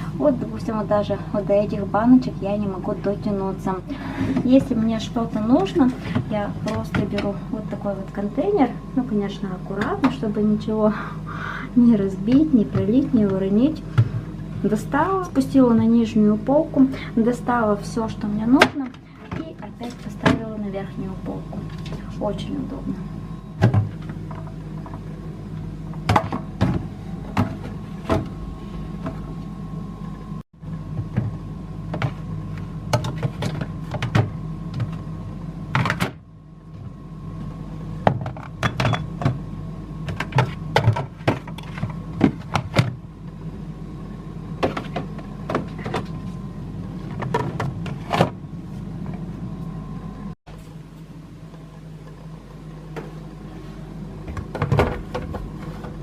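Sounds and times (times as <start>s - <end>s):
refrigerator hum: 0.0s - 56.0s.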